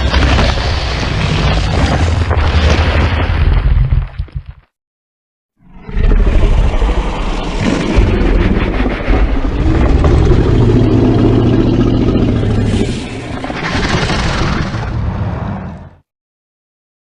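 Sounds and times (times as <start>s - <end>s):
monster roar: 5.6s - 15.2s
low drone: 5.6s - 15.8s.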